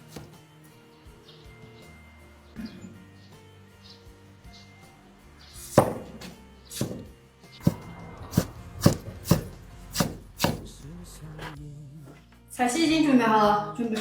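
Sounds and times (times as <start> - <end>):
knife chopping on cutting board: 0.1 - 0.4, 5.7 - 10.7.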